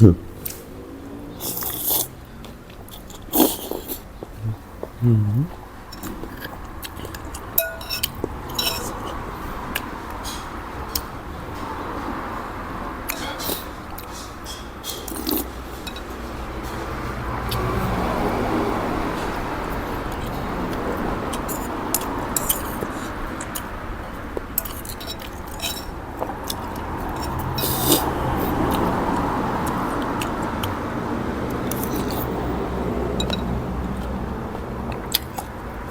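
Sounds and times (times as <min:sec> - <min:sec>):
utensils clinking against a bowl: 0:05.9 - 0:09.2, 0:13.1 - 0:16.9, 0:21.3 - 0:23.7, 0:24.4 - 0:28.1.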